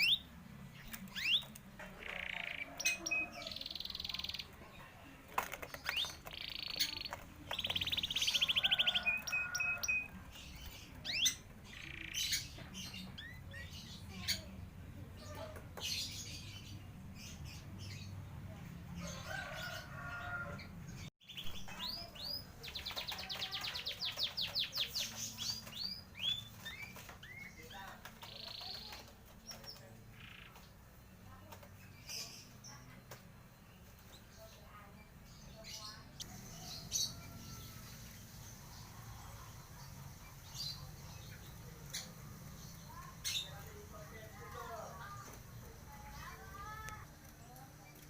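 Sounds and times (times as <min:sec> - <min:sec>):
canaries chirping and whistling: 0:00.0 - 0:04.6, 0:05.4 - 0:14.4
canary rattling trills: 0:00.0 - 0:04.6, 0:05.3 - 0:14.4.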